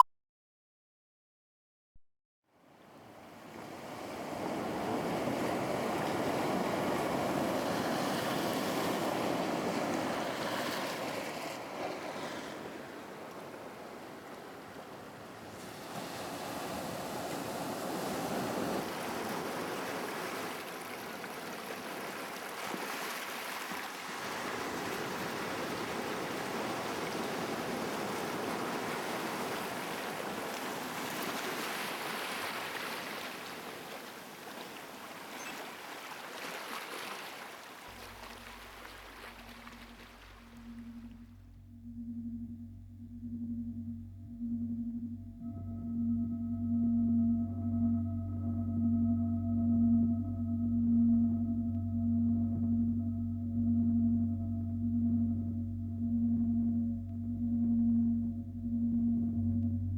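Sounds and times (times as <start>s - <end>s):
waves washing: 3.2s - 26.4s, 36.3s - 45.7s
wind blowing: 37.9s - 59.9s.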